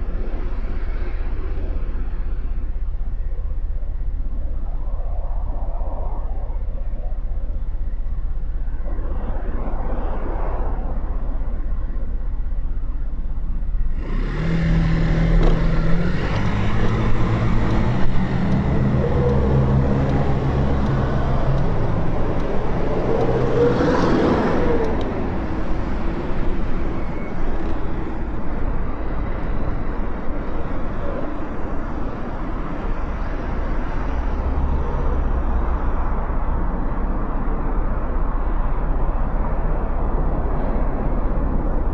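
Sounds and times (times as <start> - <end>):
traffic noise: 0.0 - 41.9
wind and road rumble: 0.0 - 41.9
motorcycle engine accelerating: 14.0 - 22.4.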